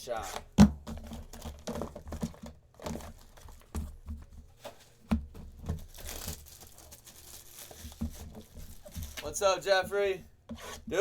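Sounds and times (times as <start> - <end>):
cardboard packaging crinkling: 0.9 - 9.6
cardboard tearing: 5.6 - 9.2.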